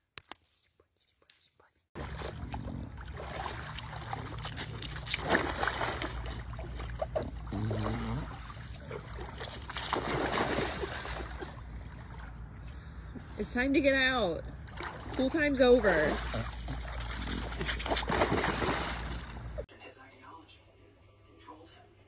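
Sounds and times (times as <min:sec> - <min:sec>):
water splashing in a pool: 0:02.0 - 0:12.6, 0:14.5 - 0:19.7.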